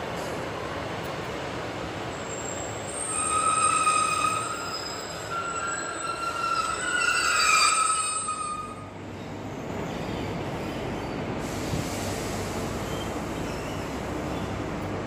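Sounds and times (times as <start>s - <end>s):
train brake squeal: 2.2s - 8.9s, 12.8s - 14.0s
train diesel engine idling: 8.9s - 15.0s.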